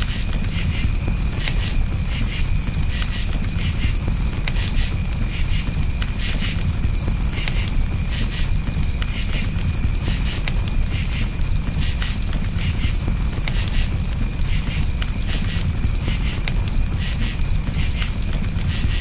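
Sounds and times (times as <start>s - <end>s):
campfire crackling and popping: 0.0s - 19.0s
crickets chirping: 0.0s - 19.0s.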